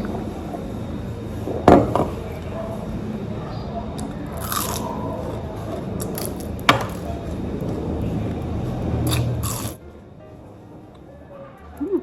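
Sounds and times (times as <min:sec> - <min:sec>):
person crunching and chewing food: 0:04.0 - 0:07.8, 0:09.0 - 0:09.8.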